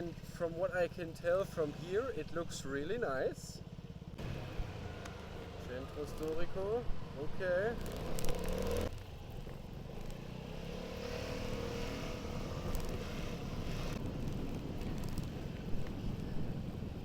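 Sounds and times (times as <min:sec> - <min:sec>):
road noise: 0:00.0 - 0:17.0
scooter engine running: 0:03.6 - 0:16.8.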